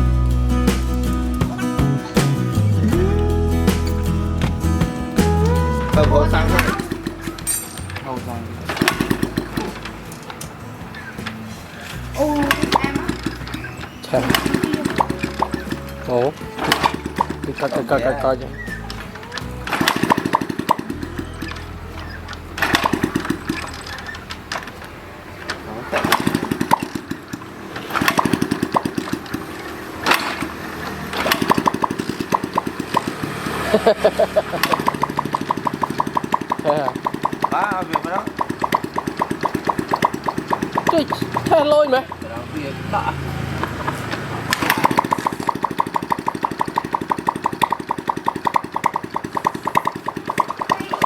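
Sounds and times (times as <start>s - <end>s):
small motorcycle engine revving: 8.6s - 10.3s, 10.9s - 51.0s.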